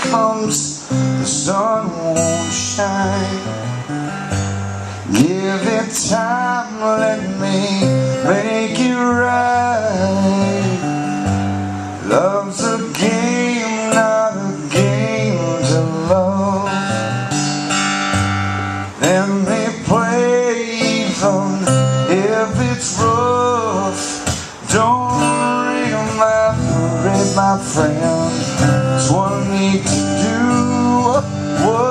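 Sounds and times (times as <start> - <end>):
bass: 0.0 - 5.4, 9.1 - 12.4, 14.7 - 20.1, 21.2 - 31.9
strummed guitar: 0.0 - 31.9
sliding lead melody: 0.8 - 31.9.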